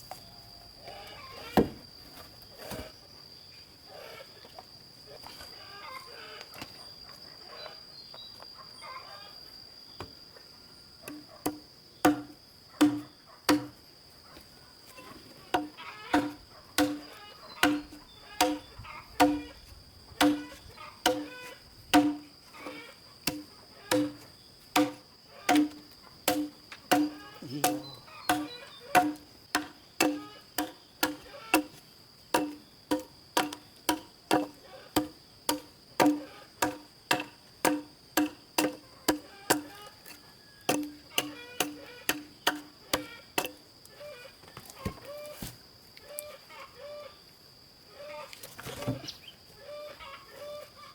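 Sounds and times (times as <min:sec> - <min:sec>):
crickets droning: 0:00.0 - 0:50.9
sharp ringing knocks: 0:11.4 - 0:13.8, 0:15.6 - 0:19.6, 0:20.2 - 0:22.3, 0:23.3 - 0:31.8, 0:32.4 - 0:39.7.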